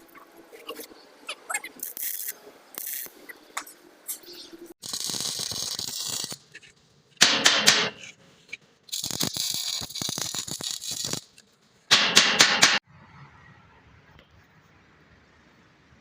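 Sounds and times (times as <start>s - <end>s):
dense crackling hiss: 4.8s - 6.6s, 8.9s - 11.8s
sharp metal strikes: 7.2s - 8.0s, 11.9s - 12.8s.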